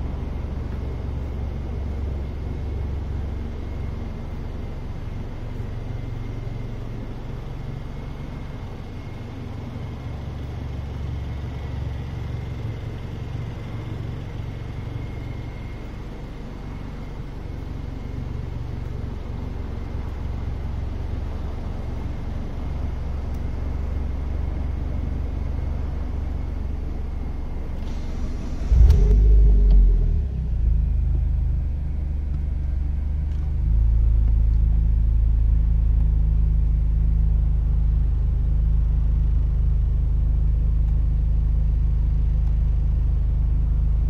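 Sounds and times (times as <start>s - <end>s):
faint steady high tone: 0.0s - 30.8s
car engine idling: 0.0s - 44.0s.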